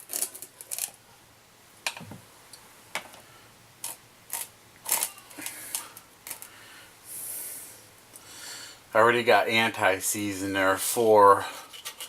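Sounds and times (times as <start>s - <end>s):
metal parts and tools clicking: 0.0s - 1.0s, 3.8s - 6.5s, 11.6s - 12.0s.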